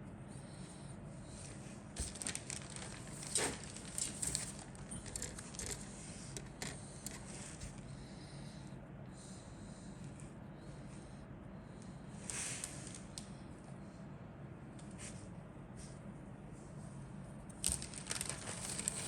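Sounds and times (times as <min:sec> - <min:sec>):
steady low hum: 0:00.0 - 0:19.0
plastic parts clicking and rustling: 0:02.0 - 0:07.2, 0:17.6 - 0:19.0.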